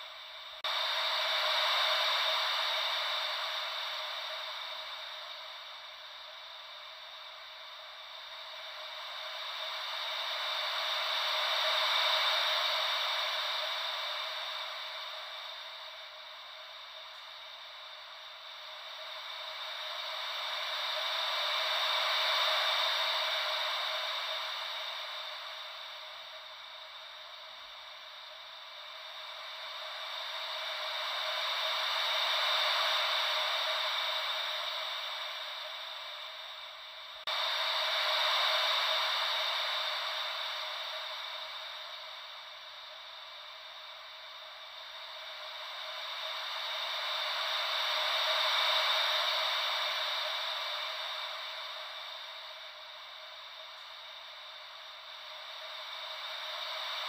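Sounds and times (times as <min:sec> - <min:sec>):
ocean wave white noise: 0:00.0 - 0:57.0.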